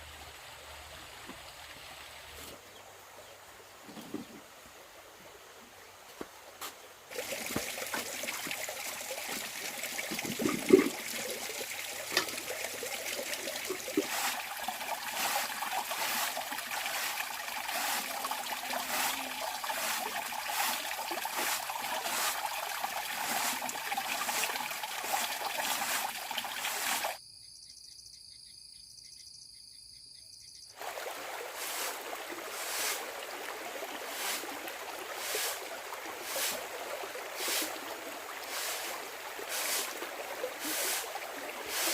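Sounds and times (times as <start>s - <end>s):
water trickling: 7.1s - 27.2s, 30.8s - 41.9s.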